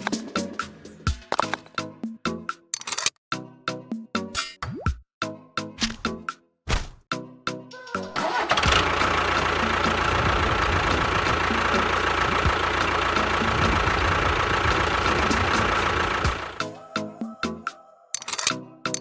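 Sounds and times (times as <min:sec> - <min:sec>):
motor whining and rumbling: 0:08.5 - 0:16.6.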